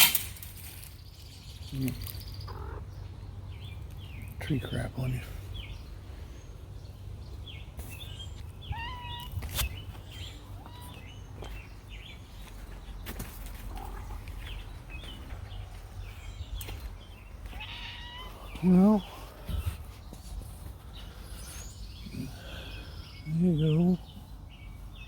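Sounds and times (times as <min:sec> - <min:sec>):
low outdoor rumble: 0:00.0 - 0:25.0
small birds chirping: 0:00.0 - 0:25.0.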